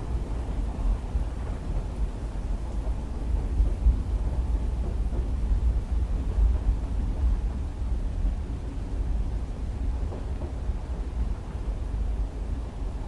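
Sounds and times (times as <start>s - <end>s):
deep train rumble: 0.0s - 13.0s
rain on a window: 0.0s - 13.0s.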